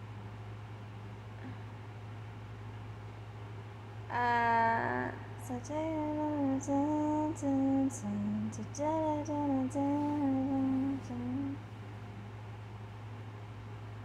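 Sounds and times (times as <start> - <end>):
low electrical hum: 0.0 - 14.0
woman singing unaccompanied: 4.1 - 11.7.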